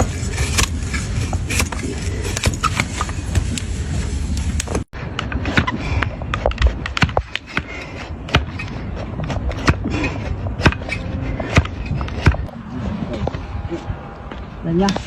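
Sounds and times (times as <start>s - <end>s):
steady scraping: 0.0s - 15.0s
hoof trimming tool clicks and knocks: 0.4s - 0.8s, 1.4s - 2.8s.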